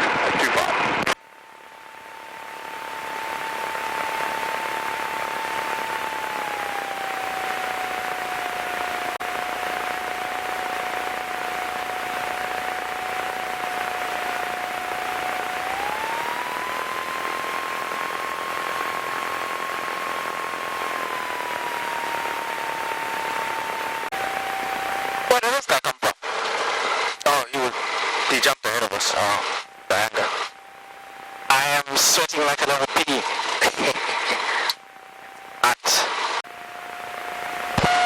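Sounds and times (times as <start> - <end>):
aircraft engine and propeller: 1.2 - 27.2.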